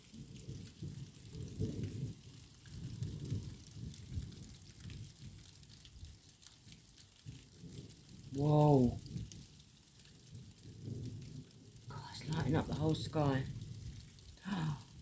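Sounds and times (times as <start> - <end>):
faint rain patter: 0.0 - 15.0
distant thunder rumbling: 10.4 - 15.0.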